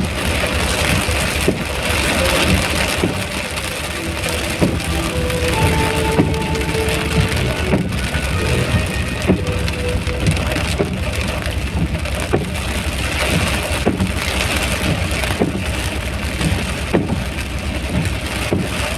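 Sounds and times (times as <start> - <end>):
low rumble: 0.0 - 16.8
louder raindrop taps: 0.0 - 18.9
rain hissing: 0.0 - 18.9.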